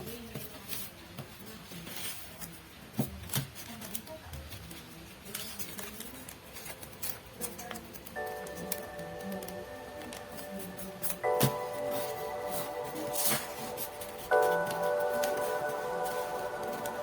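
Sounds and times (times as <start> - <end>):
paper rustling and crinkling: 0.0 - 17.0
background music: 8.0 - 17.0.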